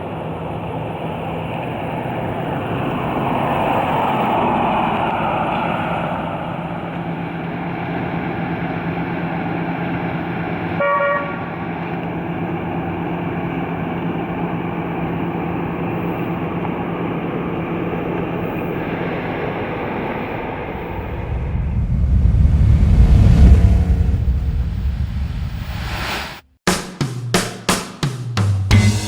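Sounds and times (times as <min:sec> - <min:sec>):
car horn honk: 0:10.8 - 0:11.5.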